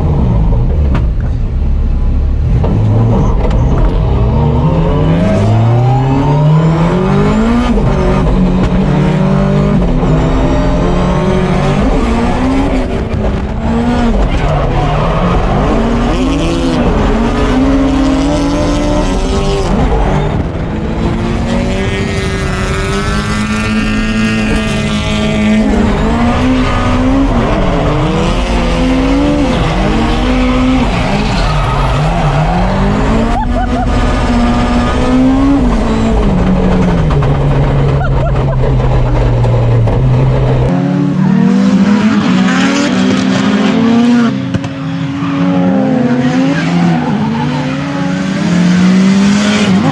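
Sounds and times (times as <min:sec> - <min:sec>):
car engine revving hard: 0:02.4 - 0:49.9
tyre squeal and skidding: 0:03.0 - 0:06.7, 0:25.3 - 0:35.0, 0:44.8 - 0:48.1.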